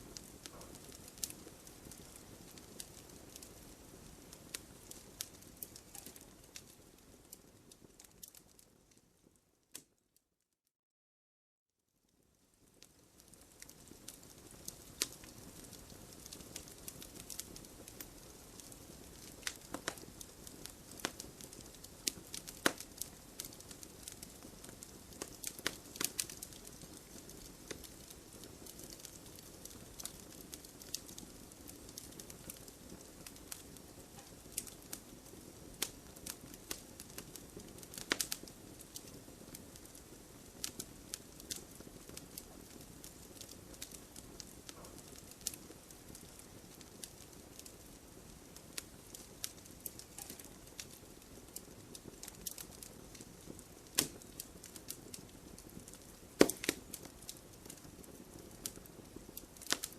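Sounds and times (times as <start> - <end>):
logs crackling and popping: 0.0 - 9.0, 12.6 - 59.9
flames rushing: 13.6 - 39.8.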